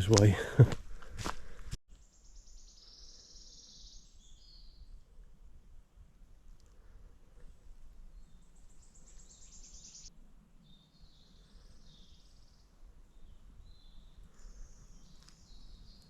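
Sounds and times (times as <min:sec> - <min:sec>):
birdsong trills and warbling: 0:02.0 - 0:05.0, 0:08.1 - 0:16.0.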